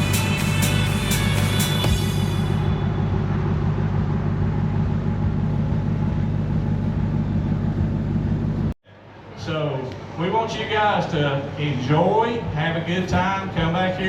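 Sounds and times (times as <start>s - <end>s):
vehicle engine droning: 0.0s - 8.8s.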